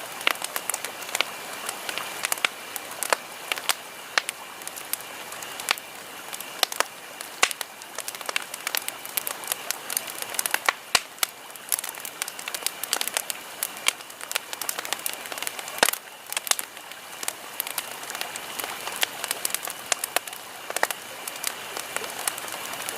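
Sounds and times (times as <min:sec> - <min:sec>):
campfire crackling and popping: 0:00.0 - 0:22.9.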